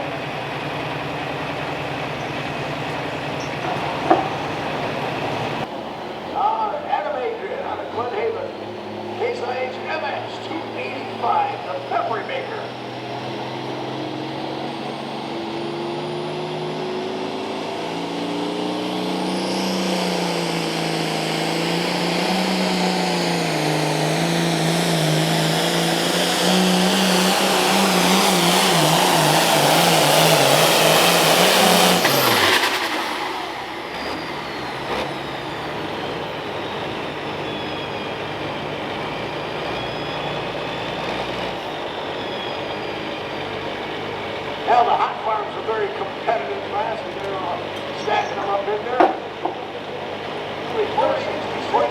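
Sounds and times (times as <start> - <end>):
tractor diesel engine under load: 0.0 - 51.9
turbo whistle: 31.5 - 43.5.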